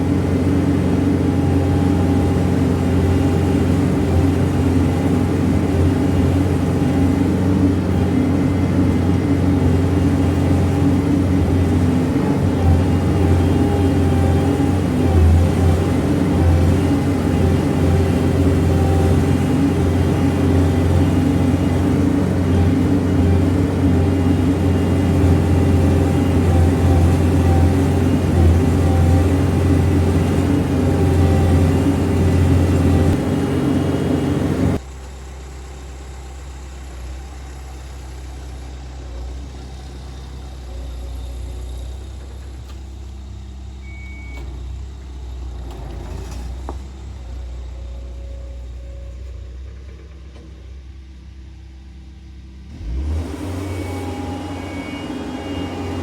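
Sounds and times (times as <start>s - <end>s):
diesel engine running: 0.0s - 56.0s
quieter engine rumble: 0.0s - 56.0s.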